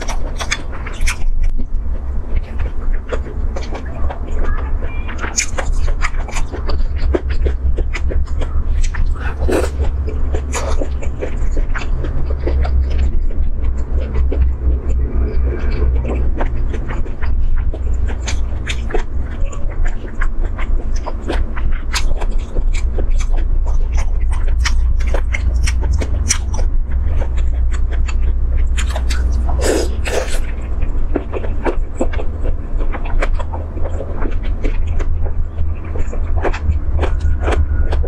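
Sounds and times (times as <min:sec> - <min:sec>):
steady low hum: 0:00.0 - 0:38.0
wet smacking and chewing: 0:00.0 - 0:38.0
slurp: 0:08.8 - 0:10.9, 0:28.8 - 0:30.5.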